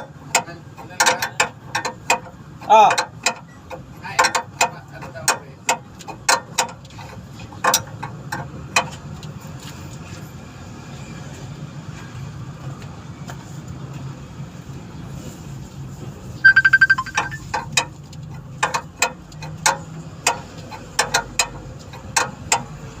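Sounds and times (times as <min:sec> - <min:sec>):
fast beeps: 0:16.4 - 0:17.5.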